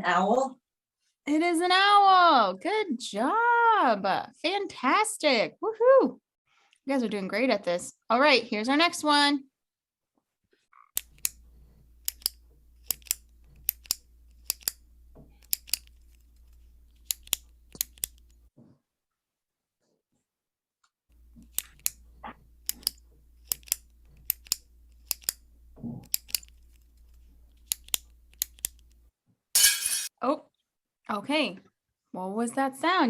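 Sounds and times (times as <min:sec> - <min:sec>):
ballpoint pen clicking: 0:12.0 - 0:14.8, 0:15.4 - 0:18.4, 0:22.6 - 0:25.4, 0:27.5 - 0:29.0.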